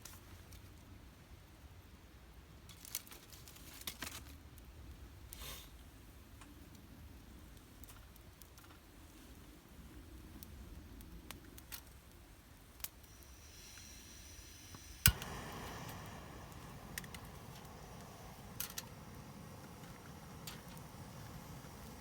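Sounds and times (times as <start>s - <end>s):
fire hiss: 5.3s - 5.8s, 12.5s - 22.0s
campfire crackling: 10.3s - 22.0s
fire snapping and popping: 10.3s - 22.0s.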